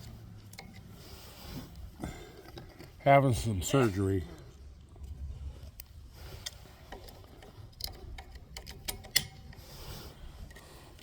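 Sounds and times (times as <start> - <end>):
rifle handling clicks: 7.8 - 9.4.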